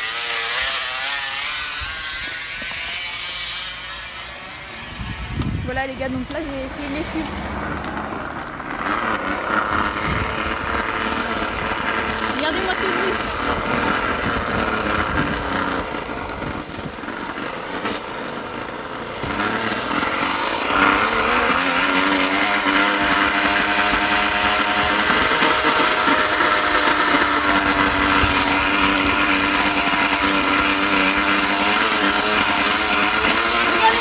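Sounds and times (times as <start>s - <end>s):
bottle flapping against bicycle spokes: 13.2s - 34.0s.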